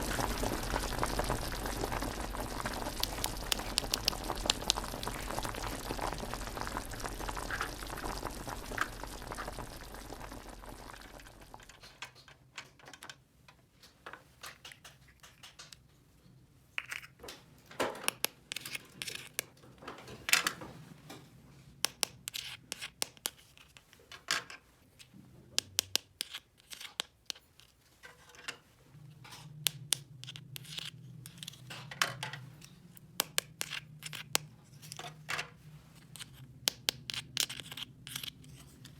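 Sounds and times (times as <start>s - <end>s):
low hum: 0.0s - 11.8s
steady hiss: 0.0s - 11.8s
plastic toy pieces clicking: 36.1s - 38.7s.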